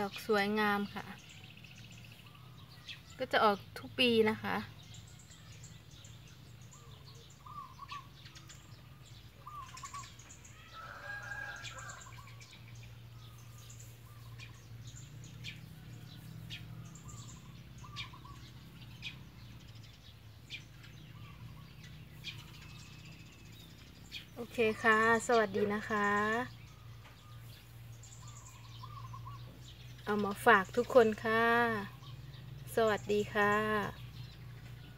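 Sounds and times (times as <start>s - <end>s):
bird chirping: 0.0s - 34.9s.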